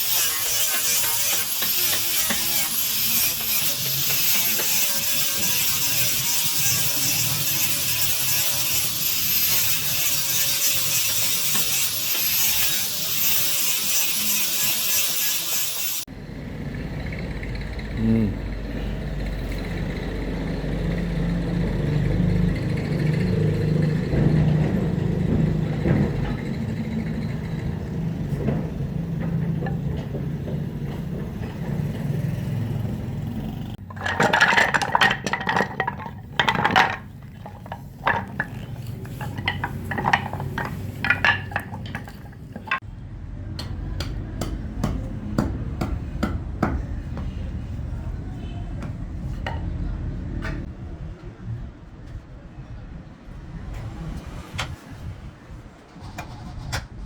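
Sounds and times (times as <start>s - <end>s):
metallic clinking and tapping: 33.8s - 42.8s.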